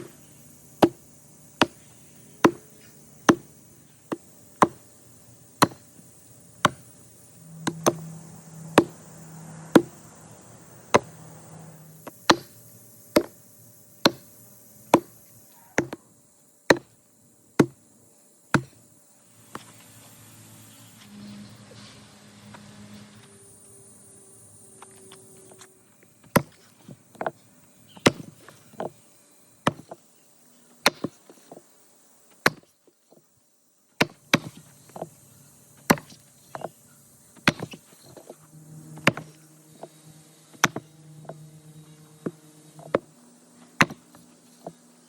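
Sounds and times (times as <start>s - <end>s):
sharp heavy knocks: 8.7s - 9.0s, 9.7s - 10.0s.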